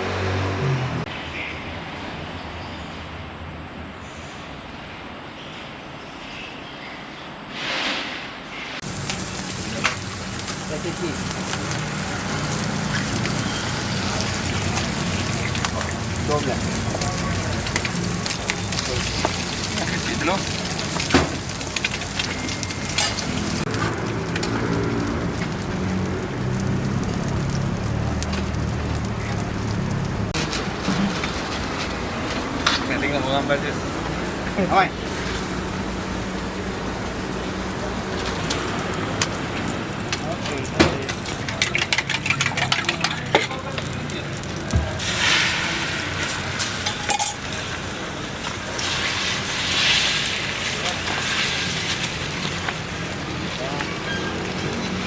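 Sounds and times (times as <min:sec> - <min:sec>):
metal utensils clinking: 0:08.8 - 0:24.5, 0:40.1 - 0:44.1, 0:46.6 - 0:47.8
food sizzling on a griddle: 0:08.8 - 0:55.0.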